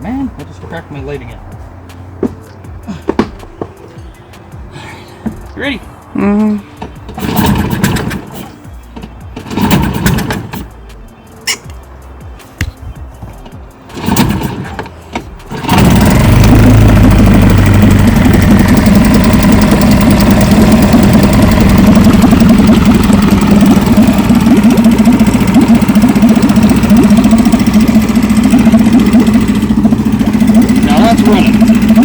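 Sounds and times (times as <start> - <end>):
outboard motor running: 7.1 - 8.4, 9.0 - 10.6, 13.9 - 32.0.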